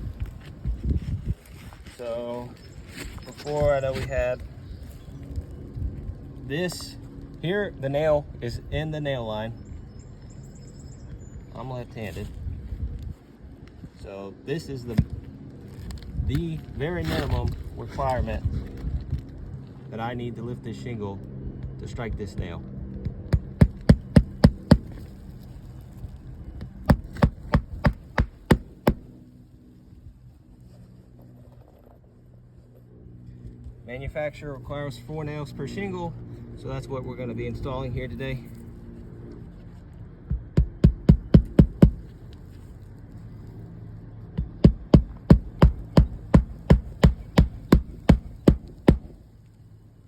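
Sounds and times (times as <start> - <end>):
steady low hum: 0.0 - 50.0
hammer driving nails into shingle: 23.3 - 25.0, 26.9 - 29.1, 40.6 - 42.1, 44.6 - 49.2.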